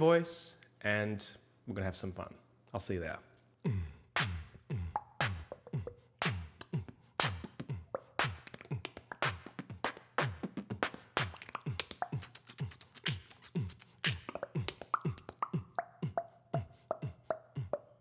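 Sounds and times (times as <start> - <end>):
beatboxing kick-drum sounds: 3.7 - 18.0
beatboxing clicks: 4.2 - 18.0
beatboxing hi-hat hisses: 4.2 - 18.0.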